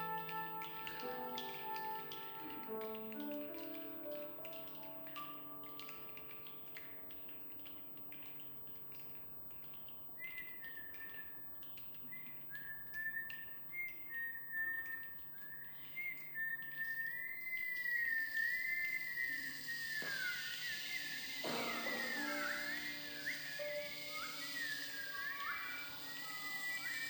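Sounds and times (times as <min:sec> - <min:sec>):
people whistling bird-like calls: 0:10.2 - 0:11.4, 0:12.1 - 0:27.0
steady hiss: 0:15.8 - 0:27.0.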